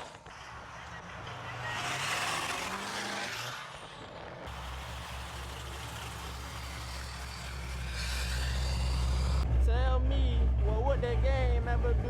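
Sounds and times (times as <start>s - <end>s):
road noise inside car: 0.0s - 9.5s
car engine running: 0.0s - 9.6s.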